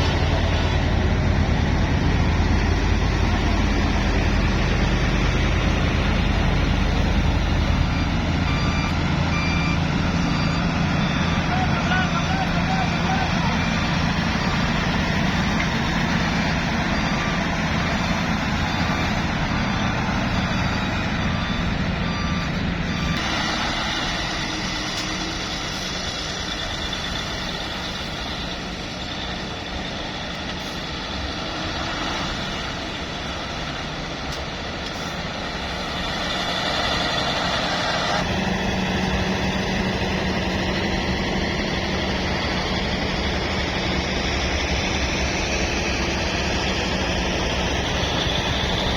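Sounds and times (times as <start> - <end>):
reversing alarm beeping: 0.0 - 33.9, 34.8 - 48.9
dump truck engines running: 0.0 - 48.9.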